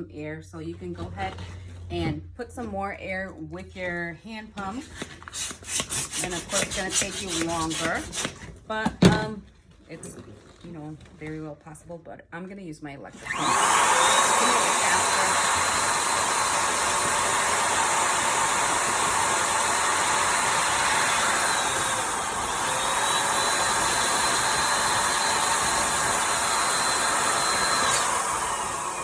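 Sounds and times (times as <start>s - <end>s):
electric balloon pump running: 4.8s - 8.6s, 13.2s - 29.0s.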